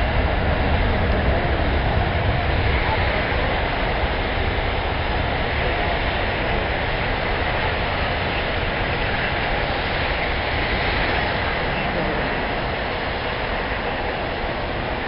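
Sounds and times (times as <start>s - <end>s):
jet engines at takeoff power: 0.0s - 15.0s.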